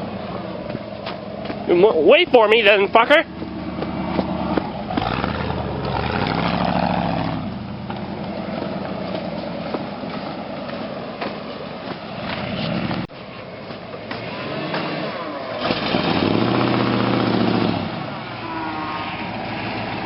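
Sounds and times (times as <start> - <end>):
truck engine running: 0.0 - 14.9.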